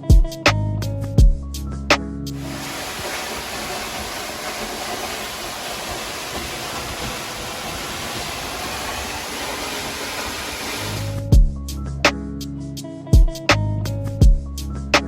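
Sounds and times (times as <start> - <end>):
rushing waterfall: 2.4 - 11.2.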